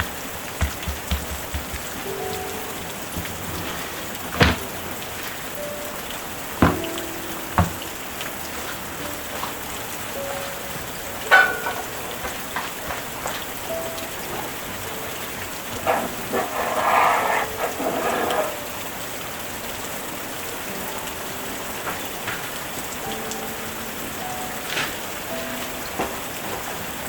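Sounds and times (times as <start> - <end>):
steady rain falling: 0.0 - 27.0
sharp knock: 0.6 - 2.0.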